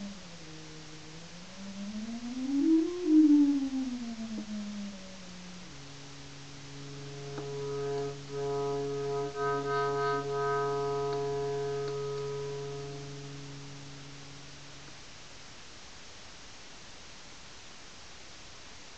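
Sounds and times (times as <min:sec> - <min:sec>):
low electronic drone: 0:00.0 - 0:14.9
synthesizer notes forming a chord: 0:00.0 - 0:14.9.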